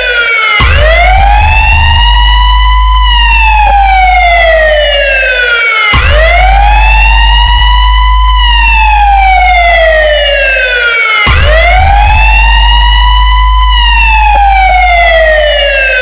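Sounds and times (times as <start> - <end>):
siren-like synth tone: 0.0 - 16.0
deep bass drone: 0.6 - 5.3, 6.0 - 10.7, 11.3 - 16.0.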